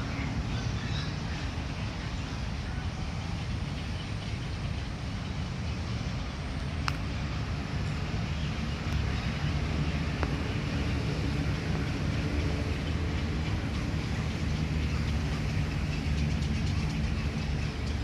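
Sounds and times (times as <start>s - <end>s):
road traffic rumble: 0.0s - 18.0s
faint sharp clicks: 6.8s - 7.4s, 8.8s - 10.8s.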